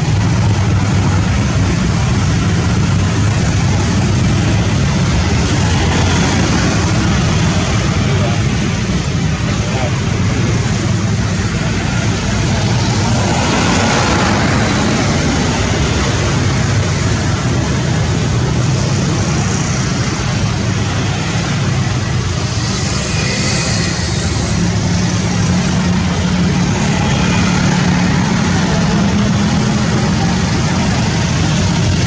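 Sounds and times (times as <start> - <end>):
jet engines rumbling: 0.0 - 32.0
faint high whine: 22.2 - 25.4.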